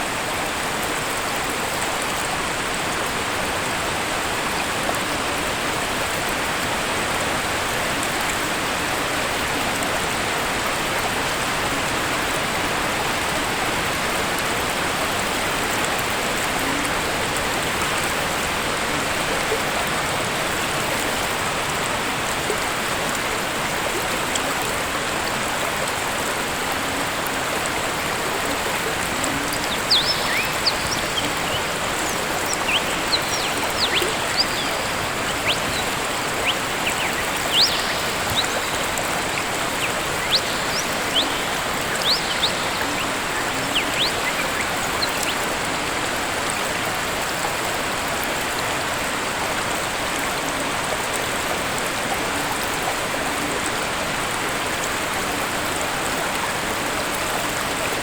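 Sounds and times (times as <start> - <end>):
waterfall rushing: 0.0 - 58.0
high bird chirps: 29.7 - 38.8, 39.7 - 45.4.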